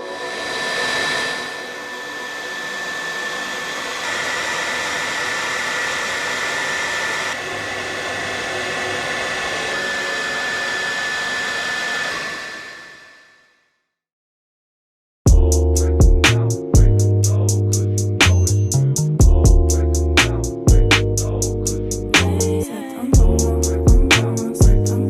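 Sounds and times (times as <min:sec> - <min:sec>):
high-pitched whine: 0:00.0 - 0:13.4
small motor spinning a fan: 0:00.2 - 0:13.5.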